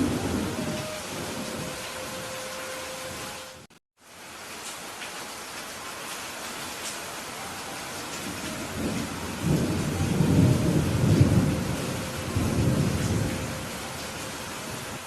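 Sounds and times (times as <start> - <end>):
thunder rolling: 0.0 - 2.4, 8.2 - 15.0
steady rain: 0.0 - 15.0.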